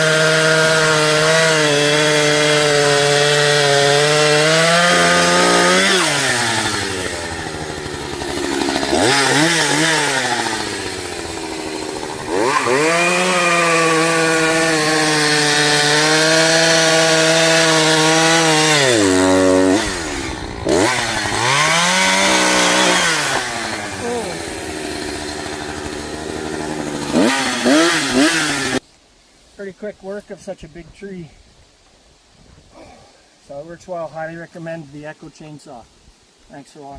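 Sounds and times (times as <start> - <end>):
chainsaw cutting tree: 0.0 - 28.8.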